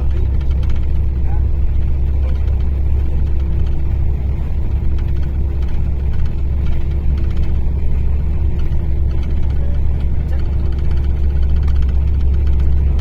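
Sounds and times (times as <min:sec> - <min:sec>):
diesel engine rumbling: 0:00.0 - 0:13.0
steady engine hum: 0:00.0 - 0:13.0.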